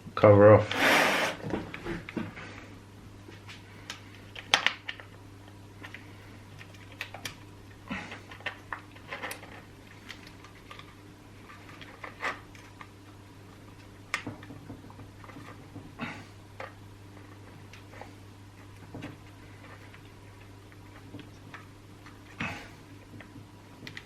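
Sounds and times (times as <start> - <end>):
steady low hum: 0.0 - 24.0
small clicks and knocks of parts: 3.4 - 7.5, 8.1 - 15.9, 23.0 - 24.0.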